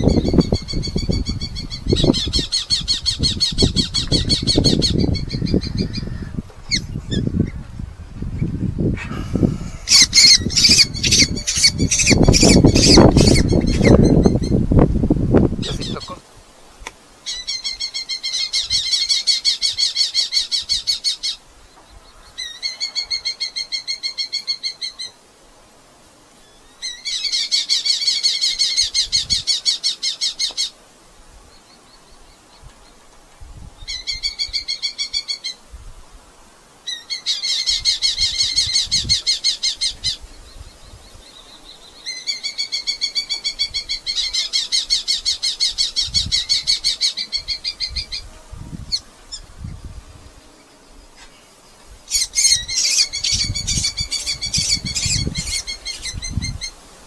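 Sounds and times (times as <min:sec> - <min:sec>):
falcon chattering calls: 0:09.8 - 0:14.6, 0:15.6 - 0:16.2.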